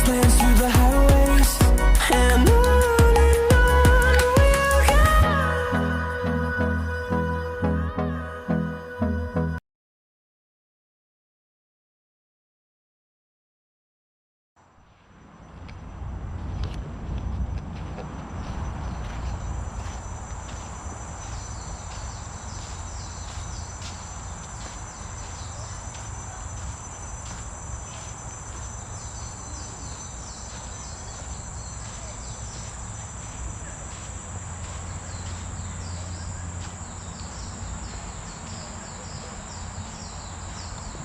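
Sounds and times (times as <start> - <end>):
insects droning: 0.0 - 7.6, 14.6 - 41.0
low rumble: 15.2 - 22.0.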